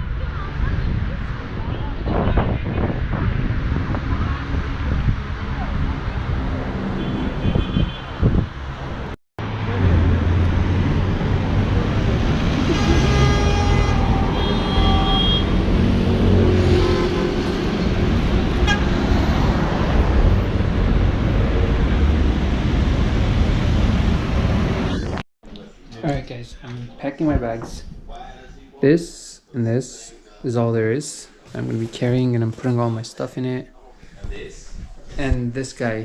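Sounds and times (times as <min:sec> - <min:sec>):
low rumble of traffic: 0:00.0 - 0:25.2
car horns honking: 0:06.9 - 0:08.5, 0:12.5 - 0:17.9, 0:18.5 - 0:19.4.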